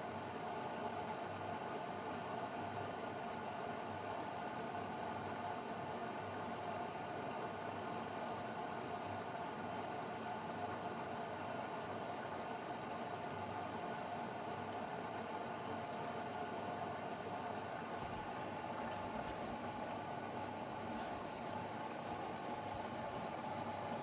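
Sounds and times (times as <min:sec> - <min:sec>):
washing machine running: 0:16.1 - 0:24.0.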